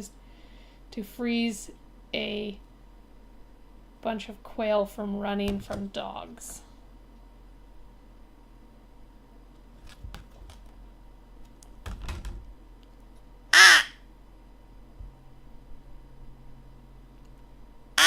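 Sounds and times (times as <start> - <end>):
crow call caw: 13.6 - 14.0.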